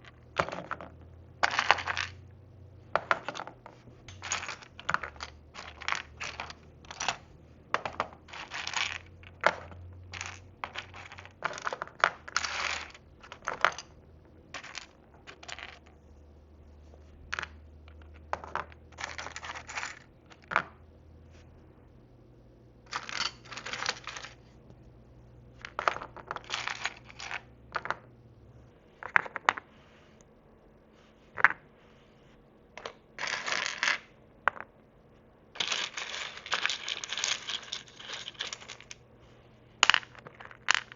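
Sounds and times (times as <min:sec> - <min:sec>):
miniature dishes clattering: 0:00.0 - 0:02.2, 0:03.0 - 0:13.9, 0:35.6 - 0:39.0.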